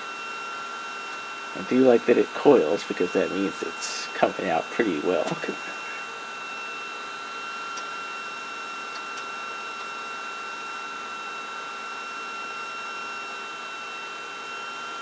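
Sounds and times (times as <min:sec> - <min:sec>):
printer whining: 0:00.9 - 0:10.2.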